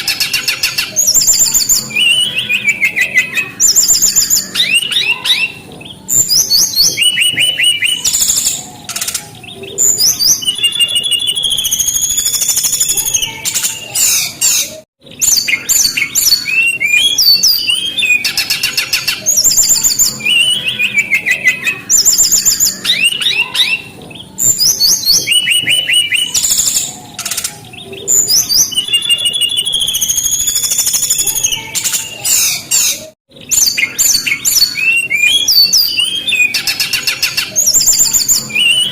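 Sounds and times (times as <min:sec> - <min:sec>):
bird singing whistles and trills: 0:00.0 - 0:38.9.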